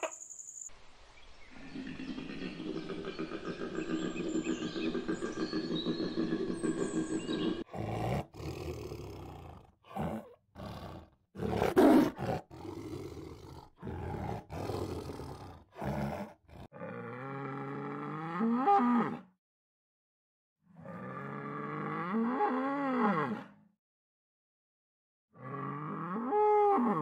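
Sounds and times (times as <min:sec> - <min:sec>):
tiger roaring and snarling: 0:02.0 - 0:19.2.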